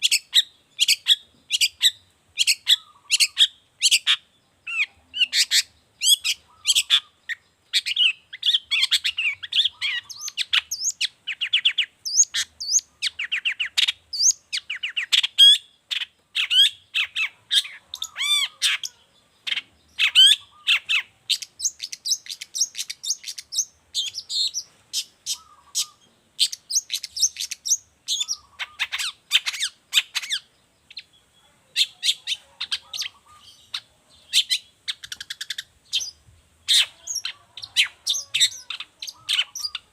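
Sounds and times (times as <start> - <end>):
shrike song chirps and whistles: 19.5 - 39.9.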